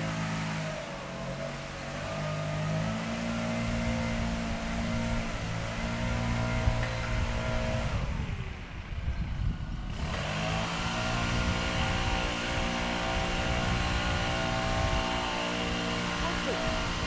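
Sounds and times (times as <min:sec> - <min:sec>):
motor running: 0:09.5 - 0:17.0.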